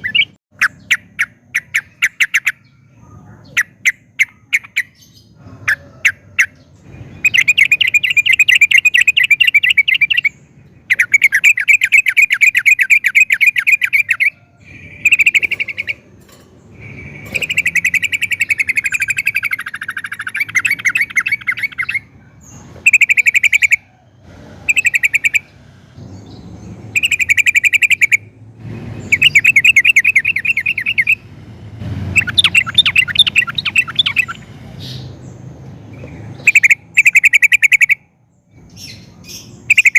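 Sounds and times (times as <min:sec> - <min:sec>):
bird singing trilled notes: 0:00.0 - 0:28.4, 0:29.0 - 0:39.9.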